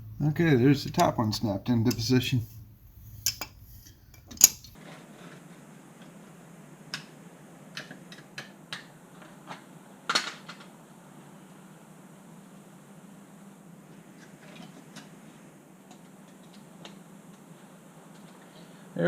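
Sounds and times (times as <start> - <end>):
faint steady hum: 0.0 - 19.0
metallic tool clicks: 0.8 - 1.2, 1.8 - 2.2, 3.2 - 4.8.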